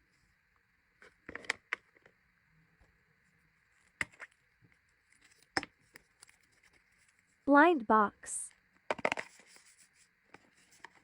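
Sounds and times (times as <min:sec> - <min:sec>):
small items clicking and knocking: 0:08.9 - 0:09.7.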